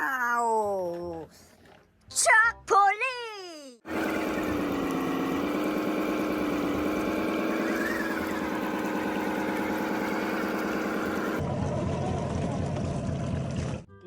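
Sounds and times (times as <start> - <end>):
toy engine hum: 3.9 - 11.5.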